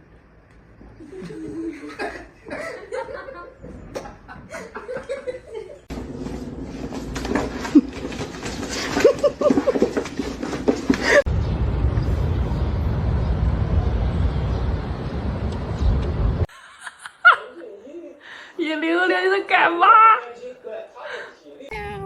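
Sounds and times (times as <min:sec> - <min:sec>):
people laughing: 0:01.0 - 0:05.9, 0:08.8 - 0:10.0, 0:16.5 - 0:17.8
steady low rumble: 0:11.2 - 0:16.5.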